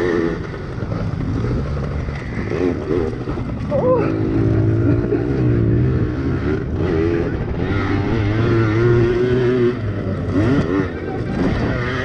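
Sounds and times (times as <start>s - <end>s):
pit bike engines racing: 0.0s - 12.0s.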